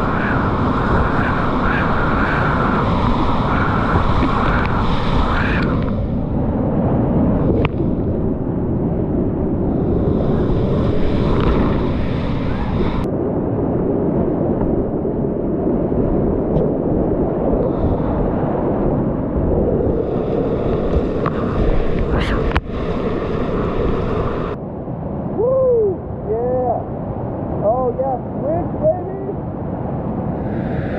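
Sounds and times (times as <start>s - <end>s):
whitewater river rushing: 0.0s - 6.6s
wind noise on microphone: 0.0s - 30.9s
faint clicks: 7.5s - 7.9s.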